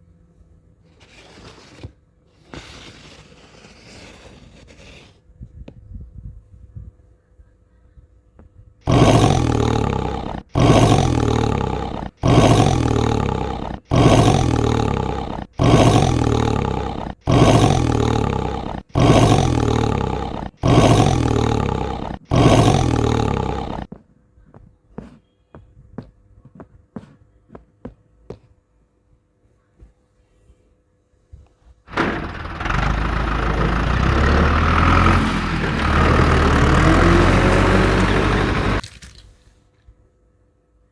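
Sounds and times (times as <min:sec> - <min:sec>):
dinosaur roar: 0:08.9 - 0:23.9, 0:31.9 - 0:38.8.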